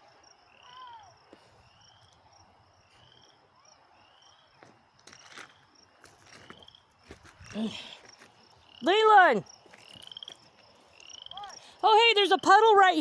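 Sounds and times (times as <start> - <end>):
frogs peeping: 8.4 - 12.6.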